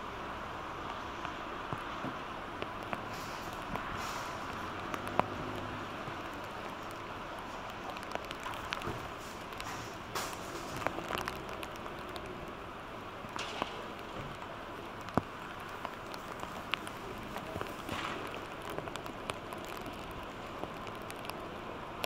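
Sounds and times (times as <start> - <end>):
noisy outdoor ambience: 0.0 - 22.0
light taps and clicks: 4.5 - 12.3, 13.3 - 21.4.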